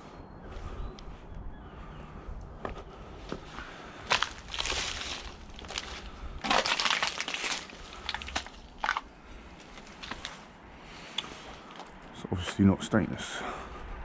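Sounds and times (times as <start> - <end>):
scrap metal crunching and rattling: 4.0 - 10.4.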